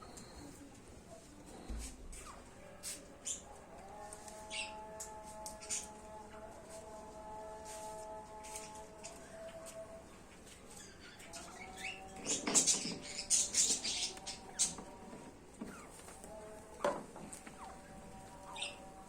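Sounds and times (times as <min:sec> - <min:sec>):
small birds chirping: 0:04.3 - 0:06.0, 0:10.2 - 0:16.6, 0:17.3 - 0:19.0.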